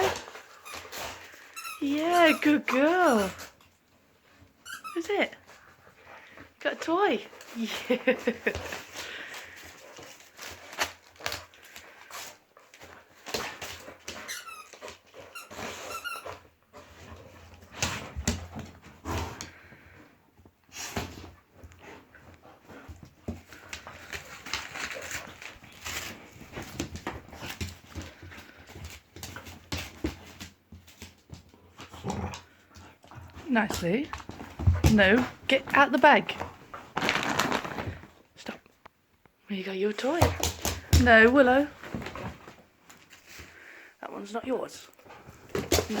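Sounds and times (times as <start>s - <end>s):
dog chewing toy: 0.0s - 6.4s, 8.6s - 19.6s
rustling: 0.0s - 39.3s, 40.2s - 46.0s
squeaky toy squeaking: 4.6s - 5.0s, 14.3s - 16.2s.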